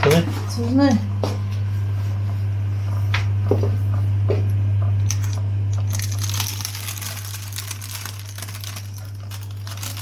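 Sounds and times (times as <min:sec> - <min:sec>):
steady low hum: 0:00.0 - 0:10.0
plastic film crinkling: 0:05.8 - 0:10.0.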